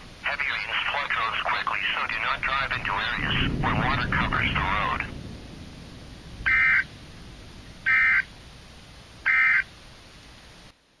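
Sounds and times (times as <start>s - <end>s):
buzzy electronic chirps: 6.5s - 6.9s, 7.8s - 8.3s.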